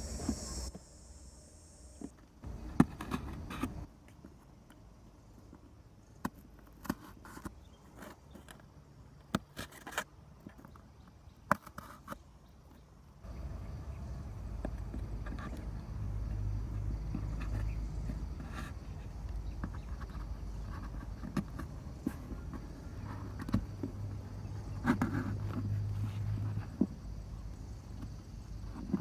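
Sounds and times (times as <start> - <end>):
hands handling cardboard: 14.5 - 29.0.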